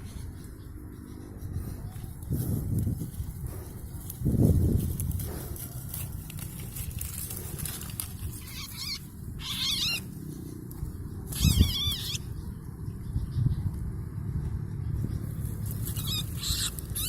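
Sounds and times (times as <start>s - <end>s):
bulbul warbling calls: 11.3s - 13.5s.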